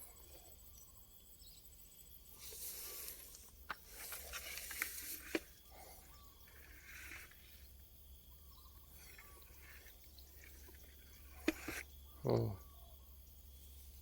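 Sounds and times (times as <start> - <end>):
rustling and scraping: 2.4 - 7.8, 8.8 - 11.9.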